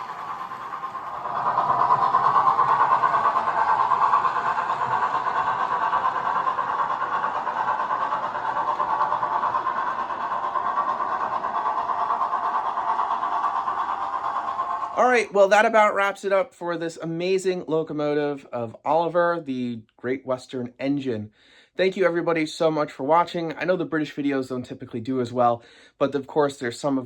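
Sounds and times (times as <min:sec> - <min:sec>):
model locomotive running on track: 0:00.0 - 0:17.0.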